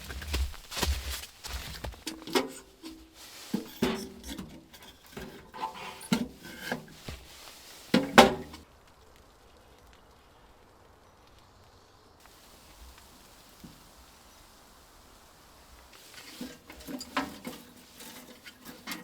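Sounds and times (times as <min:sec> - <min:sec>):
firewood knocking together: 0:05.2 - 0:08.6.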